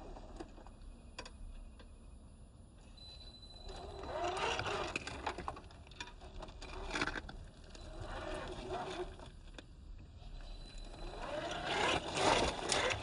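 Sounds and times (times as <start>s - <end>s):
electric motor whining: 11.0s - 13.0s.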